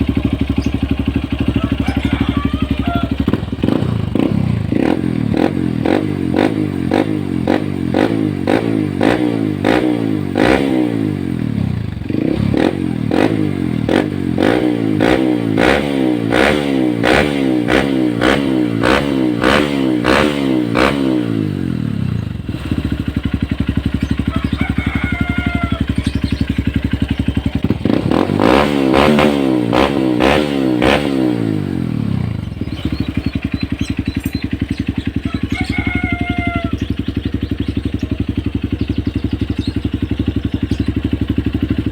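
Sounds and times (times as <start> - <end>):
motorcycle engine revving and idling: 0.0 - 41.9.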